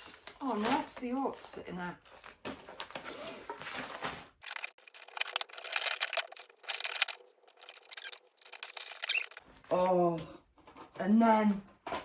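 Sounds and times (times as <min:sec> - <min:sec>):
food packets rustling: 0:02.0 - 0:09.5
small items clicking and knocking: 0:04.4 - 0:09.4.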